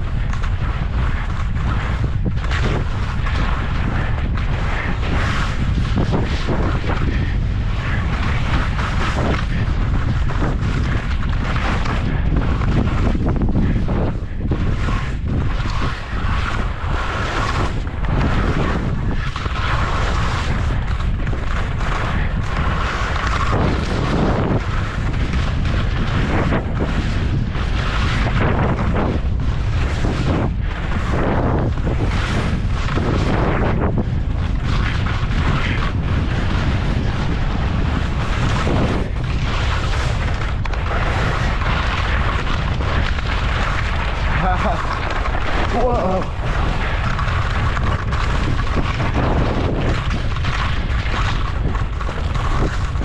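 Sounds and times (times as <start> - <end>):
wind buffeting microphone: 0.0 - 53.0
skis hissing on snow: 43.5 - 46.8.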